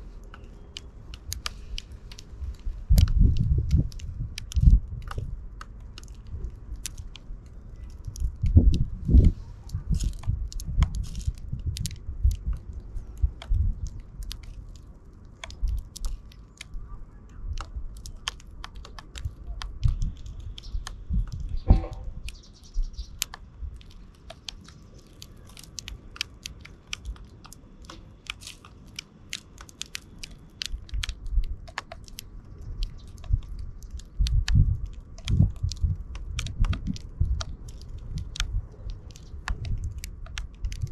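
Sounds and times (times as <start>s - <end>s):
sparrows cracking seeds: 0.0s - 40.9s
low thumps: 21.1s - 22.3s.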